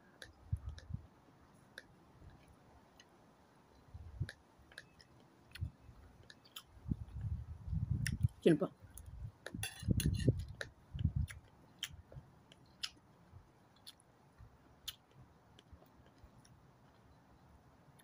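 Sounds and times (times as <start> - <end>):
person chewing with wet mouth smacks: 4.2 - 6.8, 9.0 - 13.1, 13.7 - 17.0.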